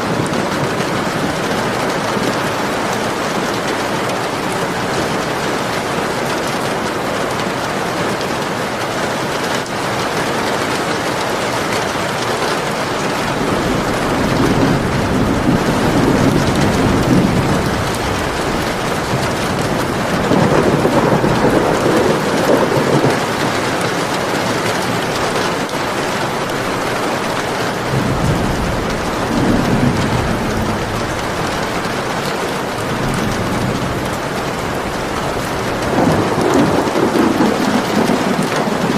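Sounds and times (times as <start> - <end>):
heavy rain hissing: 0.0 - 38.9
thunder rumbling: 12.5 - 38.9.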